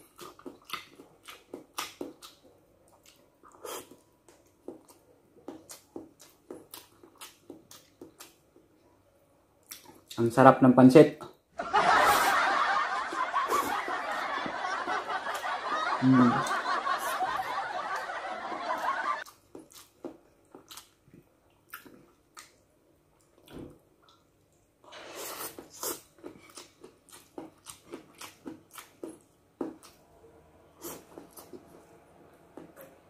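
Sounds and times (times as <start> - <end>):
slurping noodles: 24.9 - 26.1, 30.8 - 31.7.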